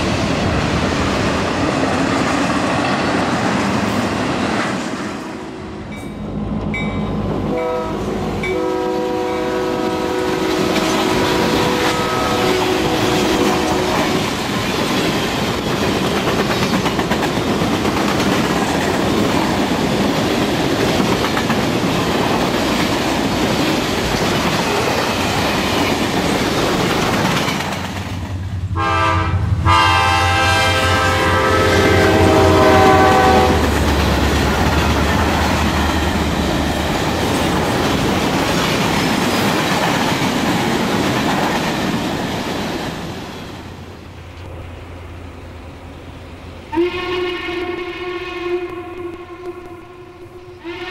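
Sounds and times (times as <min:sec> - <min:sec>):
multi-tone train horn: 0:07.5 - 0:14.4, 0:28.7 - 0:34.0, 0:46.7 - 0:50.9
model train rolling clickety-clack: 0:10.4 - 0:28.5, 0:33.4 - 0:43.5.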